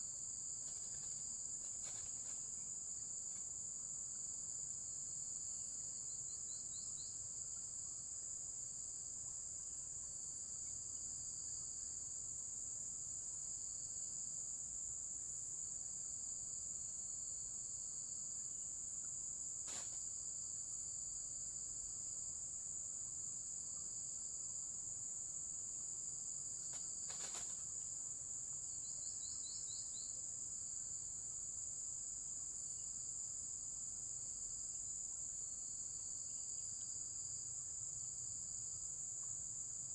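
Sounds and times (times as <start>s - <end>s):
insect trills: 0.0s - 8.4s, 16.0s - 32.0s
insect chorus: 0.0s - 39.9s.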